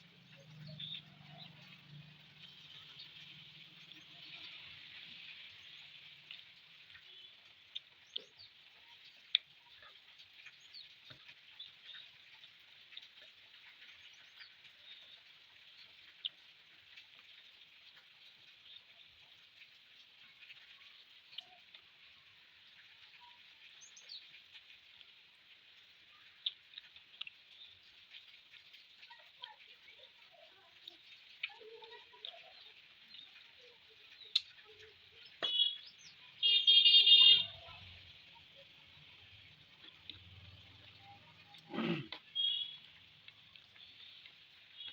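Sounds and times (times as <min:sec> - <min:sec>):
chewing food: 0:00.0 - 0:44.9
eating clicks and smacks: 0:26.2 - 0:29.7, 0:30.8 - 0:35.9, 0:40.9 - 0:44.9
bird calling: 0:41.5 - 0:42.9.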